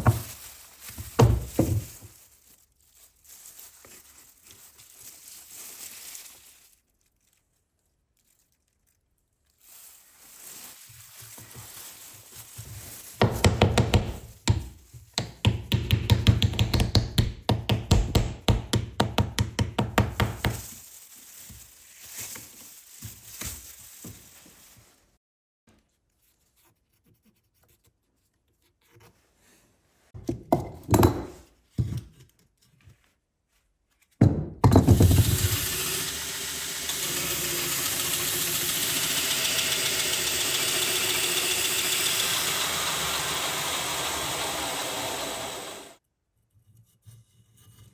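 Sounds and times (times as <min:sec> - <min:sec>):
fast tapping knocks: 0:13.2 - 0:20.6
power tool starting with thump: 0:34.8 - 0:46.0
power tool hissing: 0:35.1 - 0:46.0.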